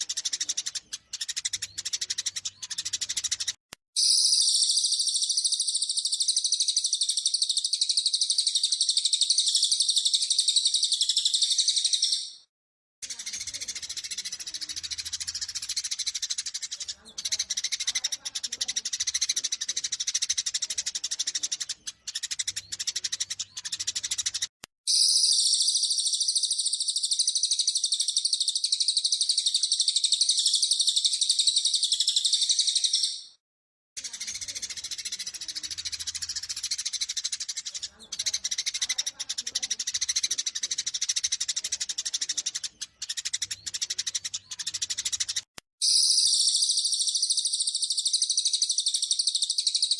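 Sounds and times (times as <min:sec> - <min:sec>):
sparrows chattering: 0:00.0 - 0:33.4, 0:34.0 - 0:49.9
bird high trill: 0:04.0 - 0:12.5, 0:24.9 - 0:33.4, 0:45.8 - 0:49.9.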